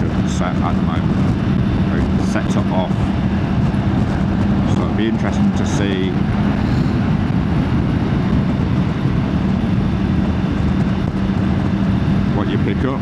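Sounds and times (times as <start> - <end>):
motorbike engine hum: 0.0 - 13.0
wind rushing: 3.0 - 12.2.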